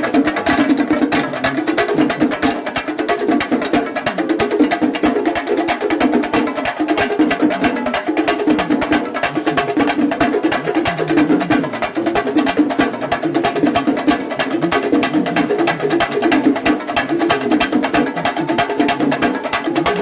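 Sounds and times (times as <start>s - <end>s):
drums and cymbals playing rapidly: 0.0s - 20.0s.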